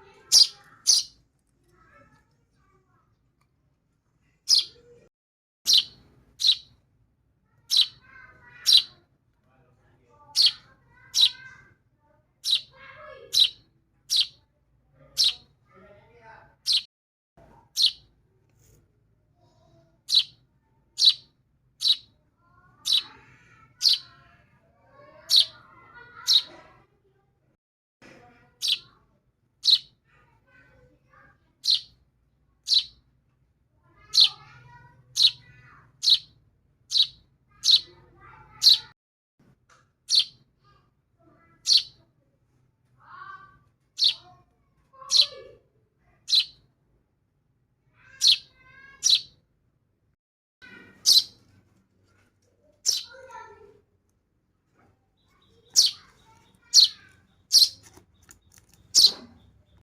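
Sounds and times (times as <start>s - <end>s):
baby birds chirping: 0.1s - 1.2s, 4.5s - 5.0s, 5.7s - 6.8s, 7.6s - 9.0s, 10.3s - 11.6s, 12.4s - 14.4s, 15.1s - 15.5s, 16.7s - 16.9s, 17.7s - 18.1s, 20.0s - 20.4s, 21.0s - 22.2s, 22.8s - 24.3s, 25.0s - 26.6s, 28.5s - 29.0s, 29.6s - 30.6s, 31.6s - 32.0s, 32.6s - 33.0s, 34.0s - 38.9s, 40.1s - 40.4s, 41.6s - 42.0s, 44.0s - 44.3s, 45.0s - 45.6s, 46.3s - 46.6s, 48.0s - 49.4s, 50.8s - 51.5s, 52.8s - 53.7s, 55.2s - 59.8s.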